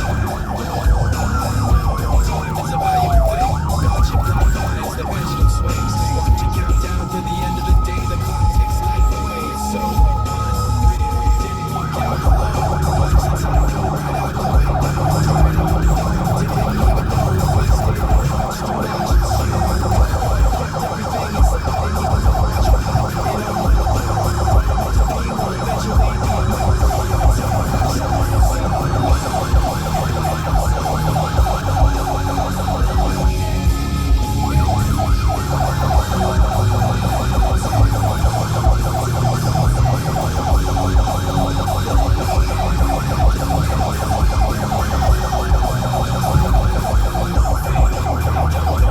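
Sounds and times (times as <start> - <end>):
engine and road rumble: 0.0 - 48.9
police siren yelping: 0.0 - 48.9.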